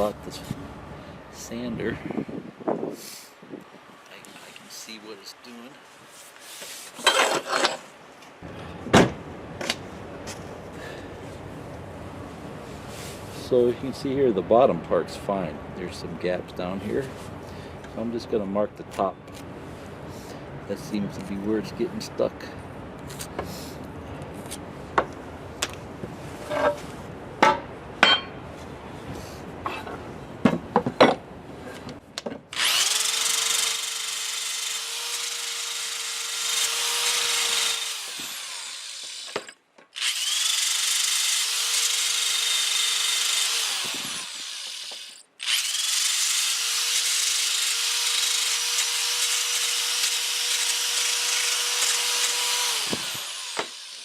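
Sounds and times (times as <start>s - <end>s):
electric sander whining: 40.0s - 54.0s.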